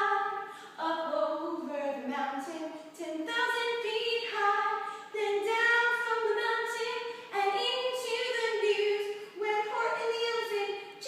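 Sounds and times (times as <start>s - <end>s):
high voices singing: 0.0s - 2.2s.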